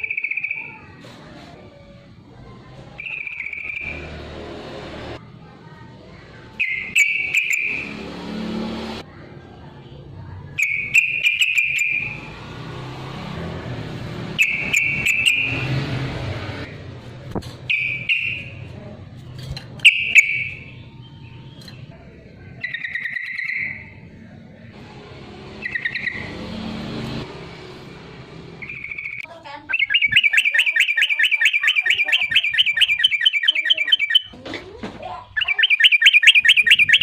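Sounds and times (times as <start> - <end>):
bulbul singing: 0.0 - 0.9, 3.0 - 4.1, 6.5 - 8.5, 10.5 - 12.8, 14.3 - 15.8, 17.6 - 18.7, 19.6 - 24.2, 25.5 - 27.2, 28.5 - 34.4, 35.1 - 37.0.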